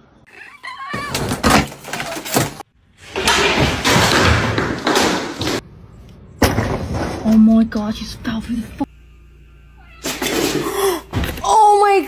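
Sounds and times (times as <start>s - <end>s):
loud clattering crash: 1.0s - 5.7s, 6.3s - 7.3s
thuds and knocks: 3.2s - 5.6s.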